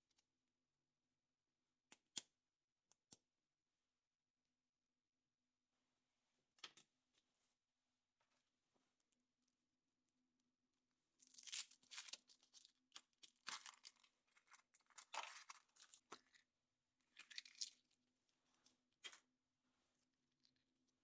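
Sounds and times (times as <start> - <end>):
foil wrapper tearing and crinkling: 11.3 - 12.7, 13.3 - 14.0.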